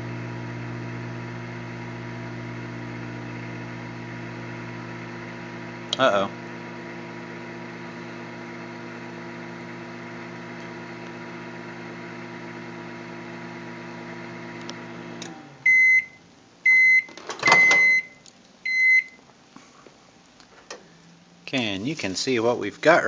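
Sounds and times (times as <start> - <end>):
microwave oven humming: 0.0 - 19.2
microwave short beeps: 15.6 - 19.2.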